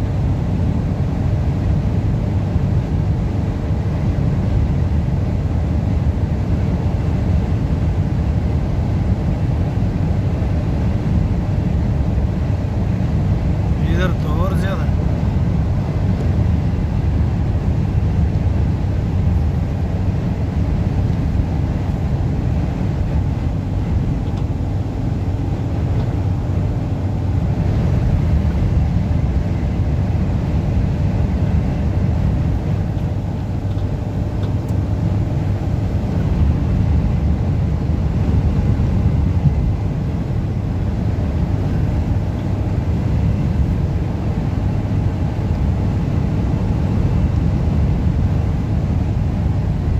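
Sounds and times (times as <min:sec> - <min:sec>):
car road and engine rumble: 0:00.0 - 0:49.9
strong wind: 0:00.0 - 0:49.9.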